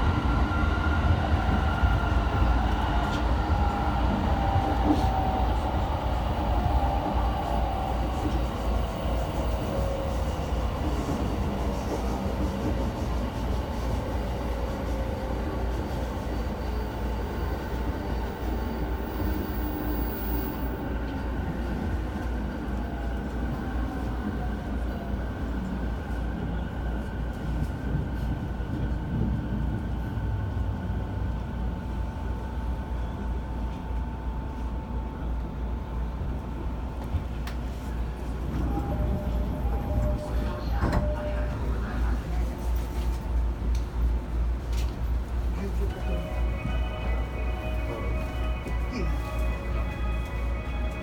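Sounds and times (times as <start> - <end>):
train wheels rumbling on track: 0.0 - 51.0.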